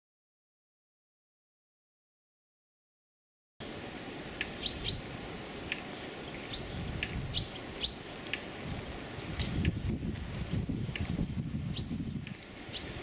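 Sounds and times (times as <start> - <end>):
small birds chirping: 4.4 - 13.0.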